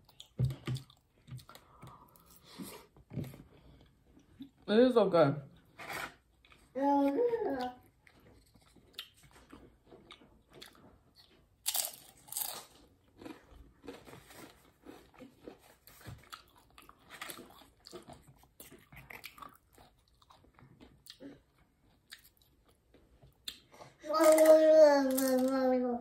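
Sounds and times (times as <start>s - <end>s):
crunching and chewing chips: 7.6s - 25.6s.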